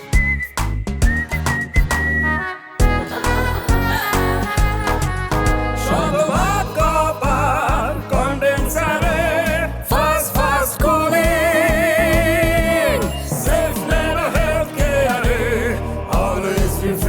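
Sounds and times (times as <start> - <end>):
pop music backing: 0.0 - 17.0
sung jingle melody: 2.8 - 10.2.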